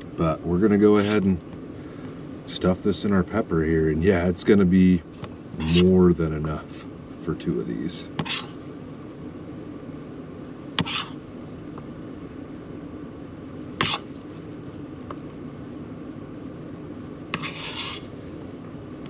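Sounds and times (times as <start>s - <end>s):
steady low hum: 0.0s - 19.0s
spoon scraping: 17.4s - 18.1s.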